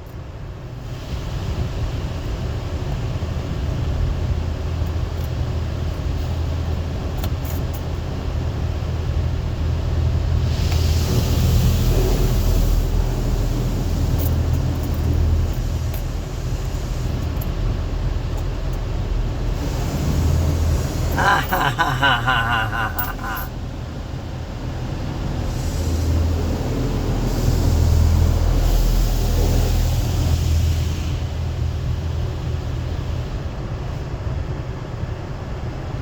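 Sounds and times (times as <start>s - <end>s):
car wash machinery and brushes rumbling: 0.0s - 22.8s, 23.5s - 36.0s
spraying water hiss: 10.4s - 17.8s, 19.4s - 21.1s, 25.4s - 32.1s.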